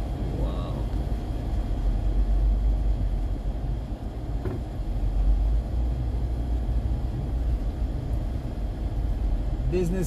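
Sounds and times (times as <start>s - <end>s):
car cabin rumble while driving: 0.0s - 10.0s.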